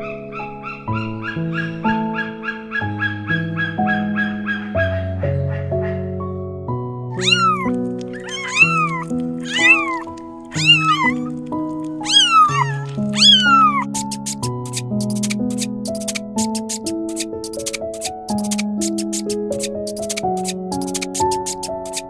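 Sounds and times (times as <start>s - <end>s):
background music: 0.0s - 22.0s
animal high calls: 7.2s - 11.4s, 12.0s - 22.0s
fast sharp clicks: 7.2s - 22.0s.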